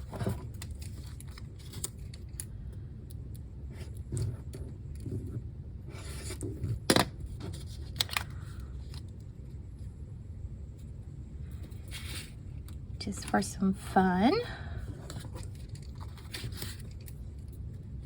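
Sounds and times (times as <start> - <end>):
paper rustling and sliding: 11.8 - 12.4.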